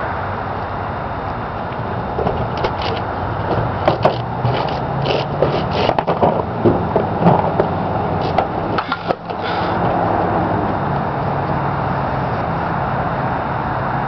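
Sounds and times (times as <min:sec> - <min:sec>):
car engine idling: 0:00.4 - 0:12.7
knocks of things handled: 0:02.2 - 0:10.0.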